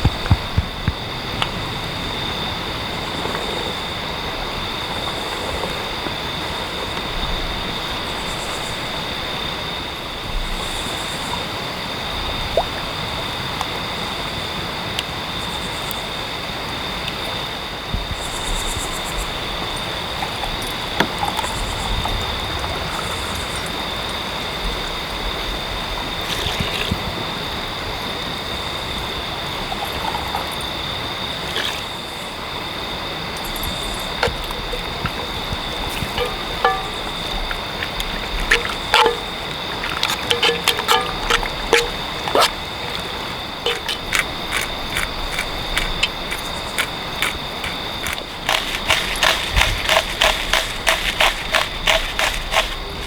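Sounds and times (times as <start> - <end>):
rushing water: 19.4 - 53.0.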